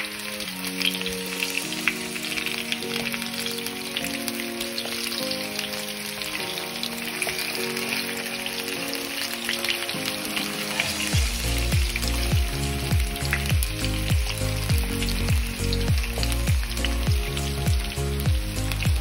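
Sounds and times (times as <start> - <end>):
background music: 0.0 - 19.0
potatoes sizzling in oil: 0.0 - 19.0
bass beat: 11.2 - 19.0.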